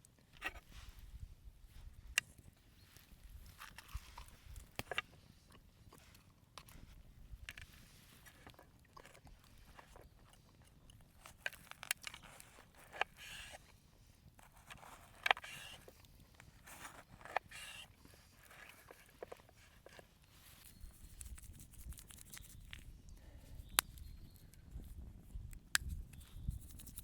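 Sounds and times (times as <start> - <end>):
small clicks and crunches: 2.2 - 6.8, 7.4 - 13.7, 14.4 - 22.9.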